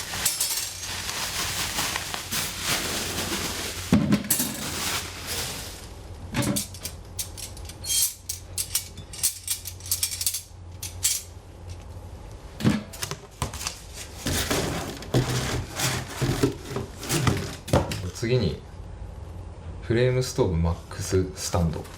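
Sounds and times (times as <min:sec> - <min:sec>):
packaging rustling and crinkling: 0:00.0 - 0:06.0.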